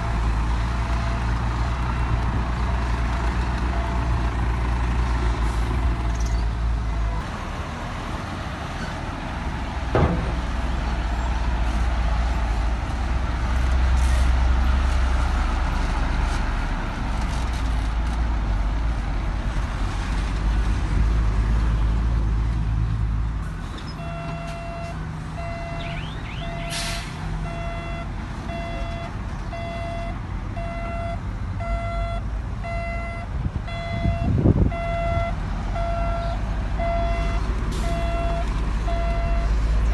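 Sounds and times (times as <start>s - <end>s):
diesel machinery running: 0.0s - 21.1s, 23.3s - 39.9s
sharp knock: 10.0s - 10.6s
back-up alarm beeping: 24.0s - 26.7s, 27.5s - 39.6s.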